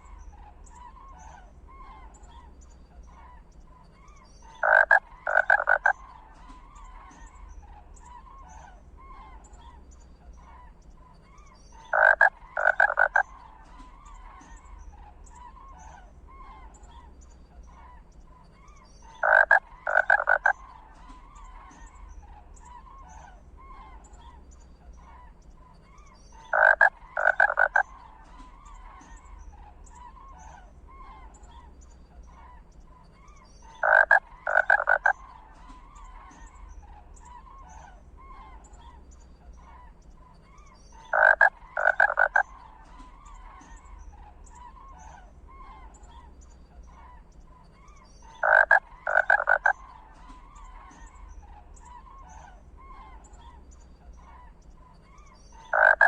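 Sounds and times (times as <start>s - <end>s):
chorus of frogs calling: 0.0s - 56.0s
loud pulsed frog call: 4.4s - 9.4s, 11.8s - 16.7s, 19.0s - 24.0s, 26.0s - 39.0s, 39.6s - 56.0s.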